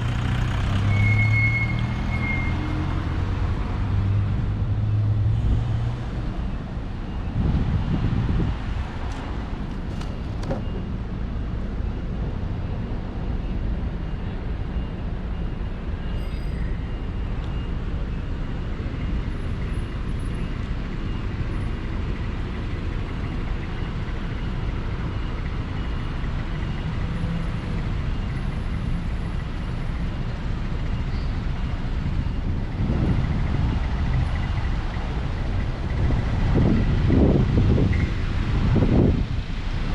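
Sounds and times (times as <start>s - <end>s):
city street traffic rumble: 0.0s - 39.9s.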